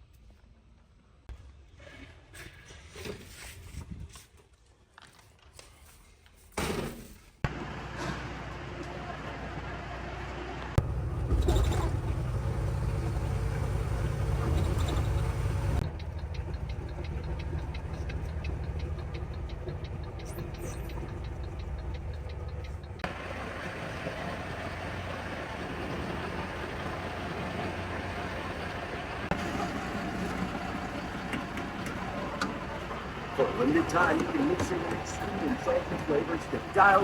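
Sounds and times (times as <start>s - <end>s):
diesel truck engine running: 7.4s - 37.0s.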